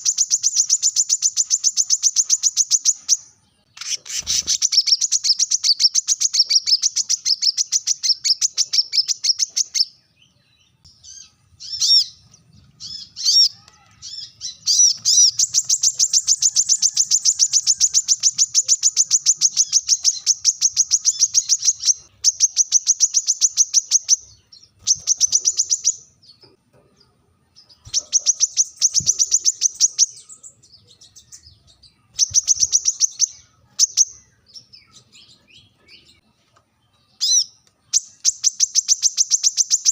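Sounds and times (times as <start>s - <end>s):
bird high-pitched fast trills: 0.0s - 9.9s, 11.0s - 26.2s.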